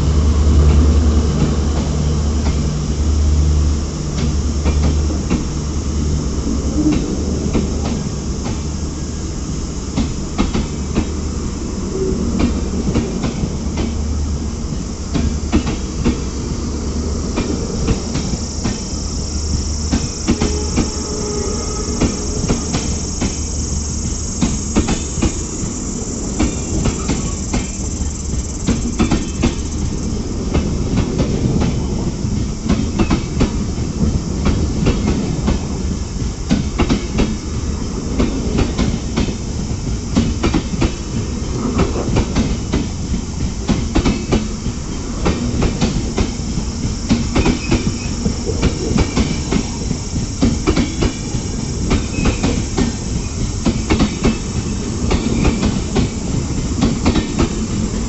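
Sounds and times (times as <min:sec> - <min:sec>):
train low rumble: 0:00.0 - 0:58.0
high-pitched whine: 0:11.1 - 0:30.5
train wheels clattering over rail joints: 0:21.8 - 0:58.0.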